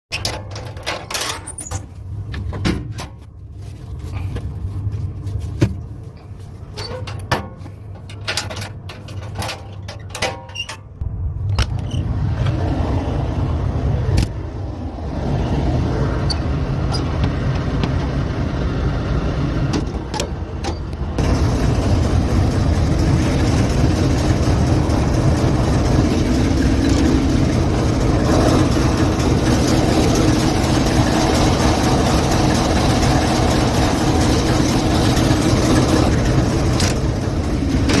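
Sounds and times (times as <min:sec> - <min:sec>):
locomotive engine running: 0:11.0 - 0:38.0.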